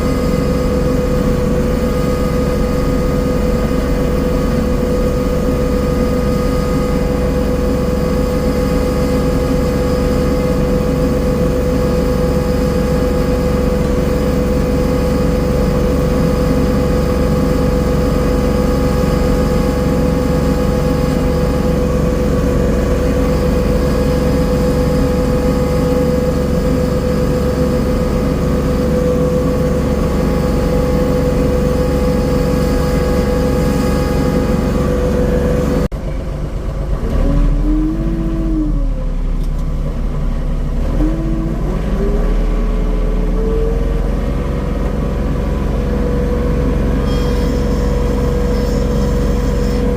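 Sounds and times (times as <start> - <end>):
garden tiller engine running: 0.0 - 37.6.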